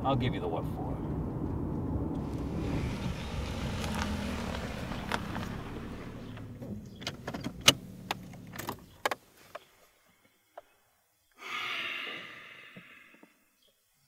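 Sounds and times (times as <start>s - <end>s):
car engine running: 1.4s - 8.7s
sharp clicks and rattles: 3.1s - 9.2s
breathy exhale: 11.4s - 13.4s.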